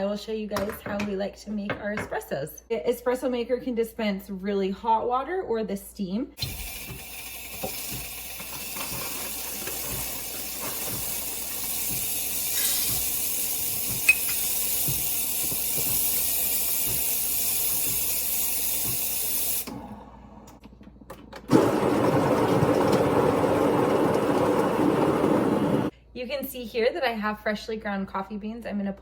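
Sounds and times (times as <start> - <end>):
espresso machine steam wand hissing: 6.4 - 19.8, 23.1 - 25.9.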